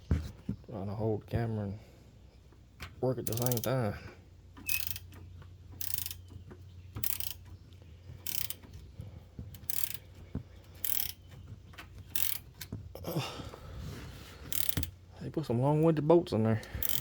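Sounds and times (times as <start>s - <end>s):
ratchet wrench clicking: 3.2s - 3.8s, 4.6s - 5.2s, 5.8s - 6.2s, 7.0s - 7.5s, 8.2s - 8.6s, 9.6s - 10.1s, 10.7s - 11.2s, 12.1s - 12.4s, 14.5s - 15.0s, 16.8s - 17.0s.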